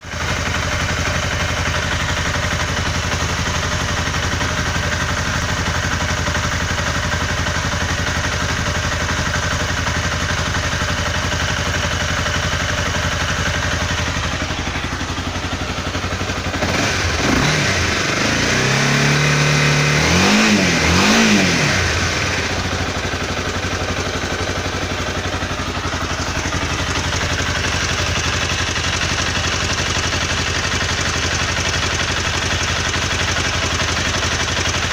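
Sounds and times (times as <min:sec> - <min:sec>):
engine ticking and knocking: 0:00.0 - 0:34.9
motorcycle engine idling: 0:00.0 - 0:34.9
motorcycle engine revving: 0:00.0 - 0:34.9.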